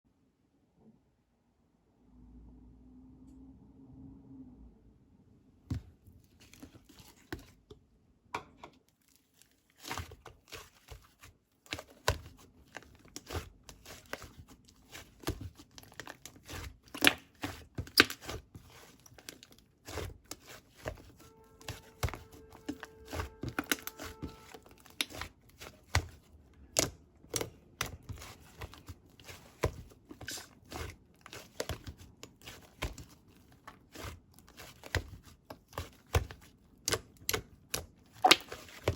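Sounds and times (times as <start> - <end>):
paper or plastic crinkling: 9.0 - 36.5.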